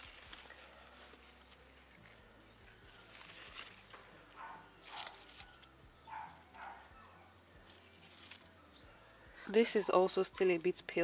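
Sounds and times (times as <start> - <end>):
leaves rustling: 0.0 - 5.8, 7.6 - 8.6.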